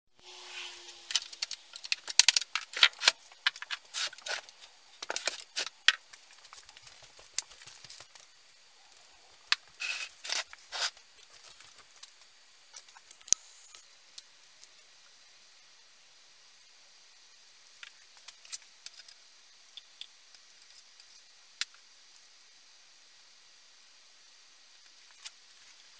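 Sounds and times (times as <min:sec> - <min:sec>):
tools and parts clicking and rattling: 0:01.0 - 0:08.2.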